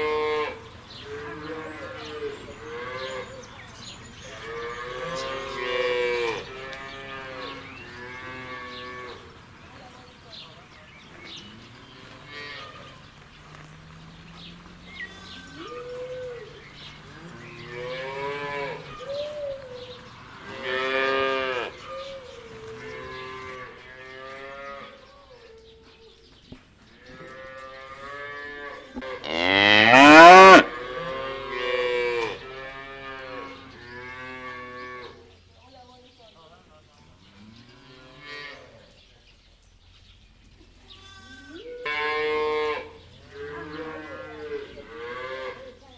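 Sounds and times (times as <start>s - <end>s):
cattle mooing: 4.4s - 9.2s, 17.1s - 19.1s, 27.3s - 35.2s.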